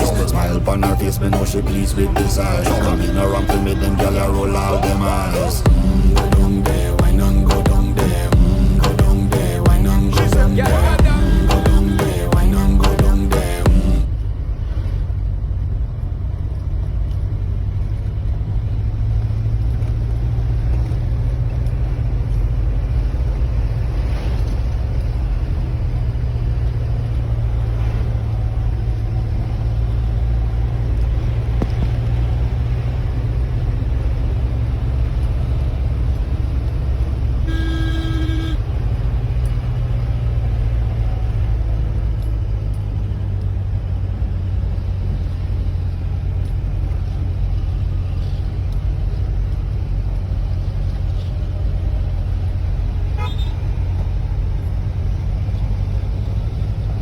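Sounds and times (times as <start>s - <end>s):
vehicle horn honk: 0.0s - 5.6s, 37.4s - 38.8s, 53.2s - 53.6s
road vehicle rumble: 0.0s - 57.0s.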